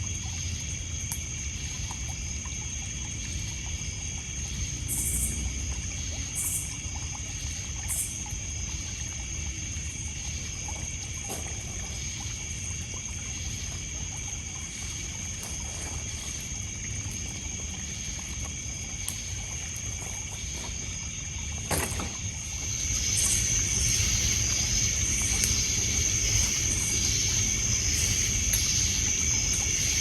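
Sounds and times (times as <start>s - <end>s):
crickets and insects trilling: 0.0s - 30.0s
campfire crackling: 6.6s - 30.0s.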